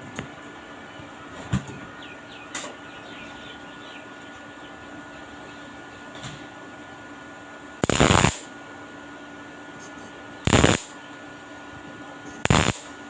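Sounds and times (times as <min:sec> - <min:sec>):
crackling electric welding: 0:07.8 - 0:08.5, 0:10.4 - 0:11.0, 0:12.4 - 0:13.0.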